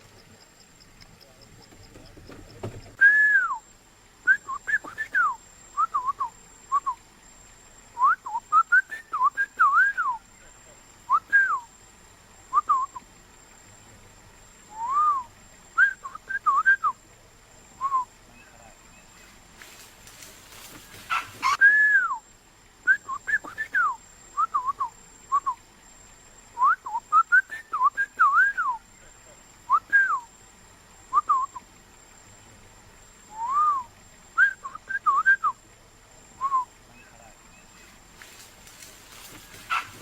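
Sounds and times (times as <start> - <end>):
person whistling short notes: 3.0 - 3.6.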